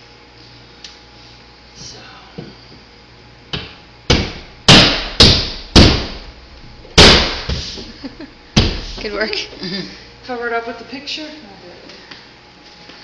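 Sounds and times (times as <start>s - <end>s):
sharp knocks: 3.5s - 6.3s.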